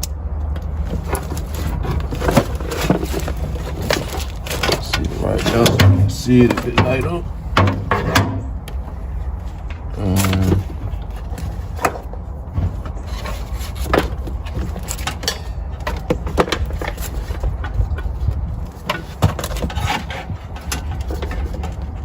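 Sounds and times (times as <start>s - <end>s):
sharp clicks and knocks: 0.0s - 8.8s
rubbing and scraping handling noises: 0.0s - 22.0s
steady low rumble: 0.0s - 22.0s.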